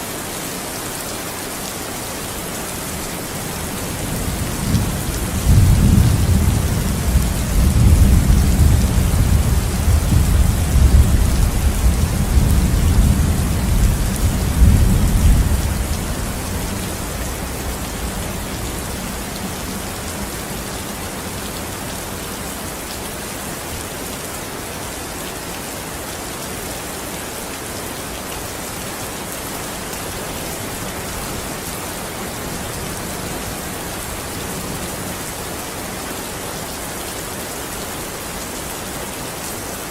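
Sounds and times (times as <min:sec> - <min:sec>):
heavy rain falling: 0:00.0 - 0:39.9
thunder rumbling: 0:03.9 - 0:20.0.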